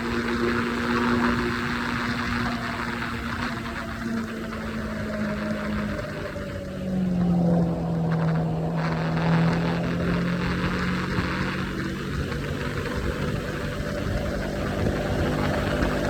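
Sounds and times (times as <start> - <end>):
motorcycle engine at speed: 0.0 - 16.0
rushing wind noise: 0.0 - 16.0.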